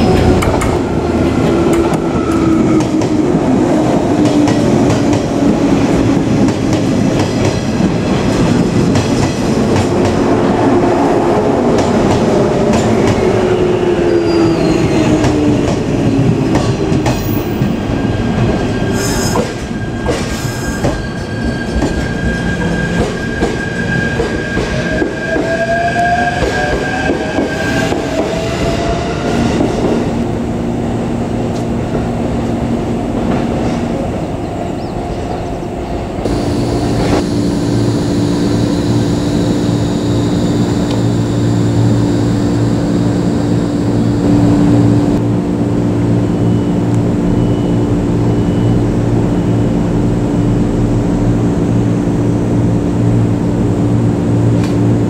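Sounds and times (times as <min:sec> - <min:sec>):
electric train braking: 0:36.2 - 0:45.2.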